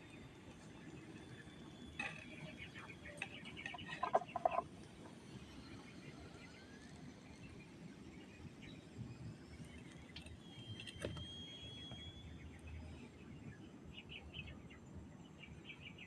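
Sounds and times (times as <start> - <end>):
birds chirping: 0.0 - 6.6.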